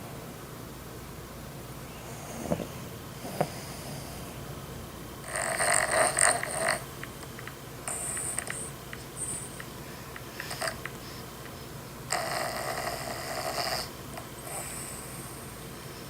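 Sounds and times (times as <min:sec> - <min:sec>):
dog snoring: 0:02.1 - 0:04.2, 0:05.2 - 0:06.9, 0:07.9 - 0:09.5, 0:10.4 - 0:11.2, 0:12.1 - 0:16.0.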